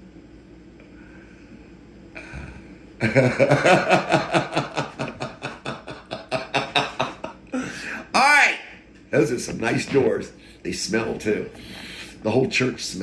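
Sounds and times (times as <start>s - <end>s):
man laughing: 3.0s - 7.8s.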